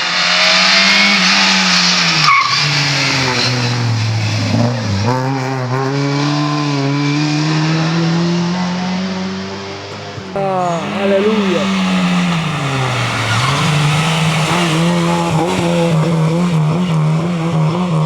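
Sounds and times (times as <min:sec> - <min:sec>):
tyre and road noise: 0:10.2 - 0:18.0
rally car engine changing gear: 0:11.1 - 0:18.0.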